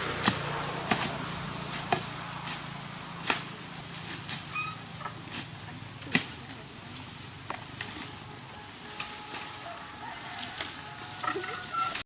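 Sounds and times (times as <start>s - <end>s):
short high squeak: 4.5s - 4.8s, 11.4s - 12.0s.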